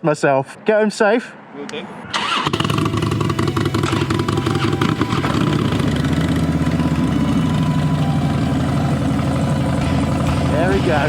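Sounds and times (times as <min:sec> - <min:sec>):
motorcycle engine idling: 0:02.5 - 0:11.0.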